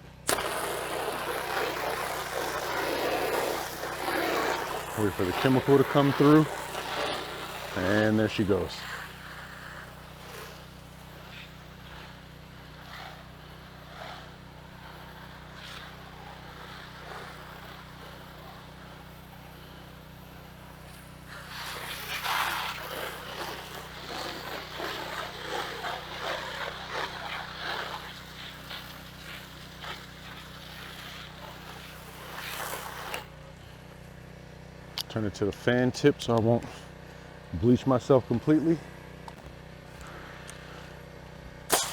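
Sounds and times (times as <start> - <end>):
pressure washer engine hum: 0.1 - 41.9
water spray hissing on siding: 0.2 - 33.4, 41.6 - 41.9.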